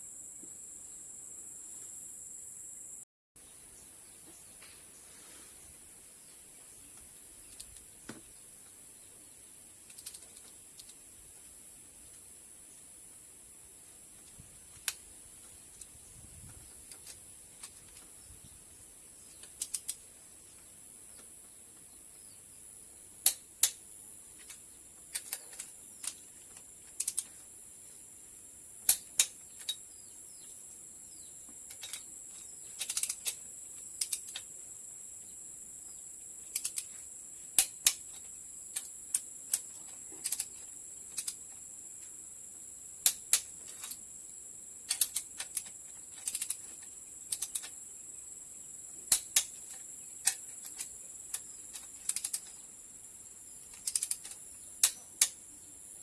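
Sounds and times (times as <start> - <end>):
high-pitched insect drone: 0.0 - 3.0
tools and metal parts clicking: 24.4 - 27.4, 31.6 - 34.6, 36.4 - 41.7, 44.8 - 47.8, 49.1 - 52.6, 53.7 - 55.4.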